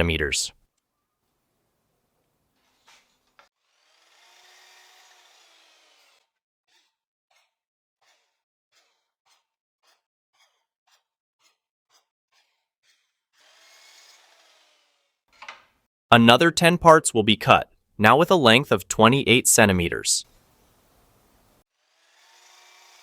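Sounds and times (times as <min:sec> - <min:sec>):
faint miter saw motor: 0:03.6 - 0:06.3, 0:13.4 - 0:15.2, 0:21.8 - 0:23.0.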